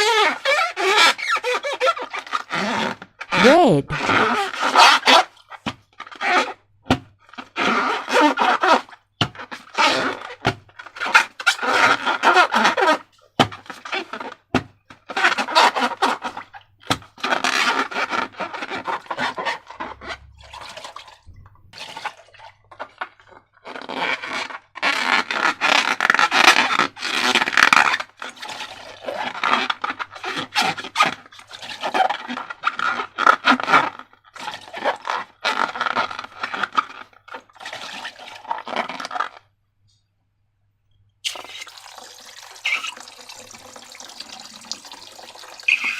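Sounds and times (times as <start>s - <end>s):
slime squelching by hand: 41.3s - 45.9s.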